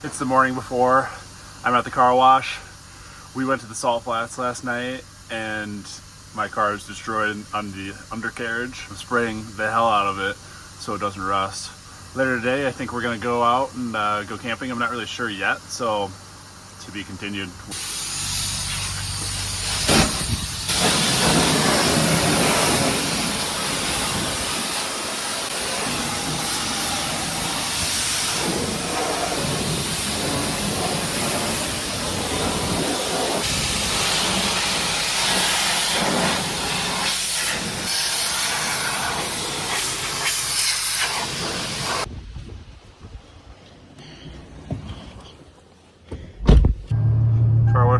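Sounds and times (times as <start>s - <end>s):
pressure washer spraying car: 5.0s - 42.1s.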